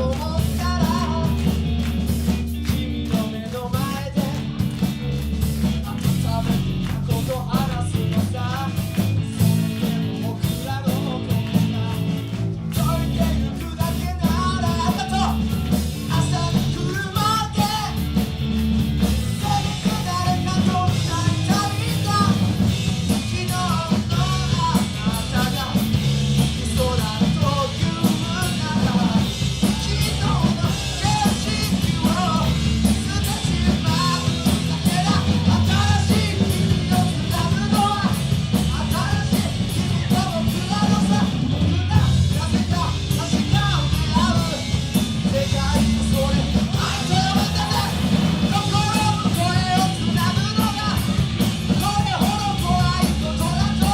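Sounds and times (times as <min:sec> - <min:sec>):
bass guitar: 0:00.0 - 0:53.9
drum kit: 0:00.0 - 0:53.9
electric guitars: 0:00.0 - 0:53.9
keyboard: 0:00.0 - 0:53.9.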